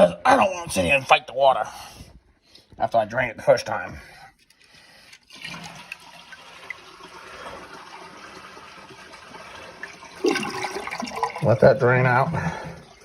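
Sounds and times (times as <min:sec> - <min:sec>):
water rushing into toilet bowl: 0:05.2 - 0:13.0.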